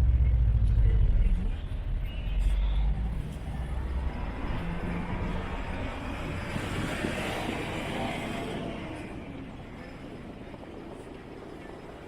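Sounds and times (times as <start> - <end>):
heavy vehicle rumble: 0.0 - 12.0
road noise: 0.0 - 12.0.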